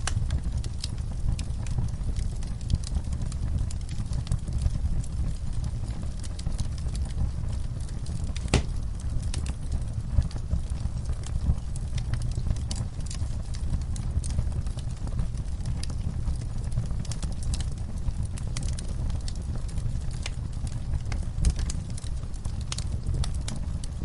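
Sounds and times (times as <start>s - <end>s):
low rumble of flames: 0.0s - 24.0s
wood fire crackling: 0.0s - 24.0s
fire pop: 8.1s - 10.3s.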